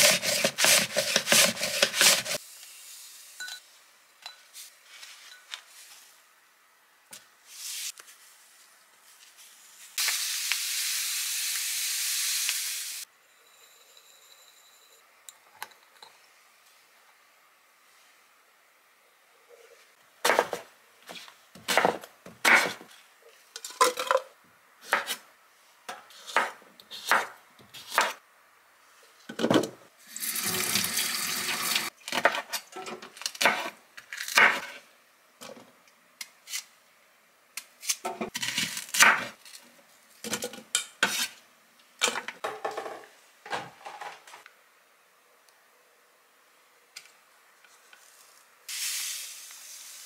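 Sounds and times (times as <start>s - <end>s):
kitchen tap running: 30.1s - 31.9s.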